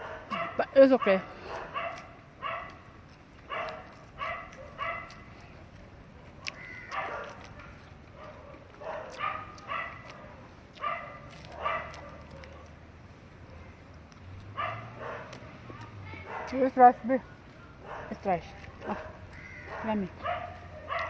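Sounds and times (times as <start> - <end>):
dogs barking: 0.0 - 5.3, 6.4 - 12.8, 14.4 - 15.4, 16.2 - 16.8, 17.8 - 21.0.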